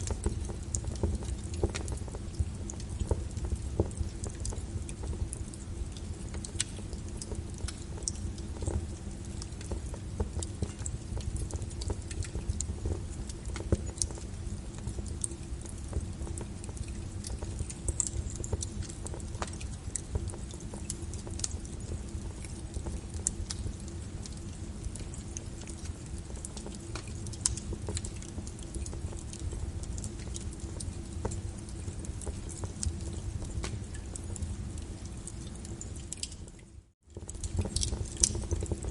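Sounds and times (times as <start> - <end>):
fire crackling in fireplace: 0.0 - 38.9.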